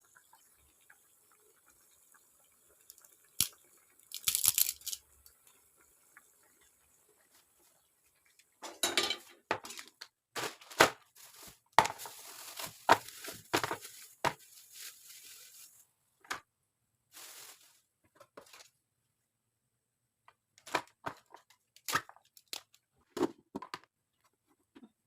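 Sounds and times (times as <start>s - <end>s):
cookware knocking: 8.6s - 9.7s
kitchen utensils scraping: 8.6s - 10.7s.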